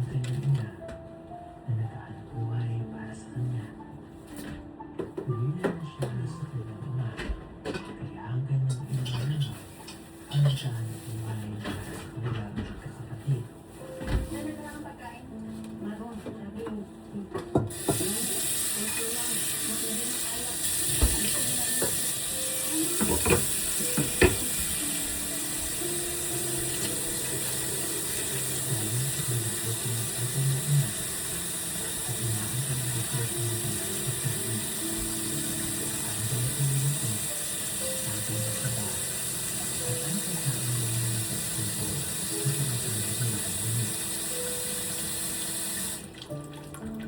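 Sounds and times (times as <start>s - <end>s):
faint background music or tv voices: 0.0s - 47.0s
water running from faucet: 17.5s - 47.0s.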